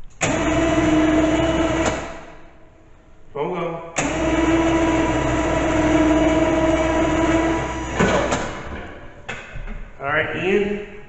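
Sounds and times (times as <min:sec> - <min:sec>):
electric winch motor whine: 0:00.2 - 0:02.2, 0:04.0 - 0:09.0.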